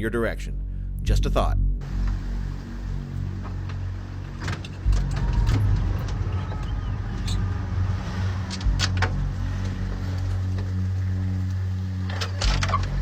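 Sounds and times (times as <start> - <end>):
engine humming: 1.8 - 13.0.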